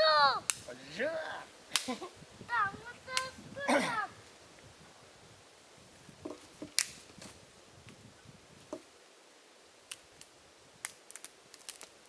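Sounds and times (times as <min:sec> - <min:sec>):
campfire crackling and popping: 0:00.0 - 0:04.7, 0:06.2 - 0:08.0, 0:09.8 - 0:12.0.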